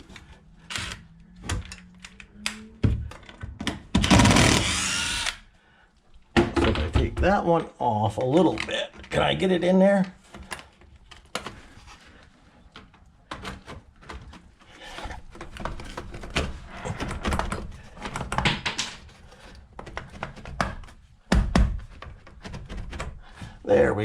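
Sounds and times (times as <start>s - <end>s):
clicks knocks and scraping: 6.4s - 23.6s.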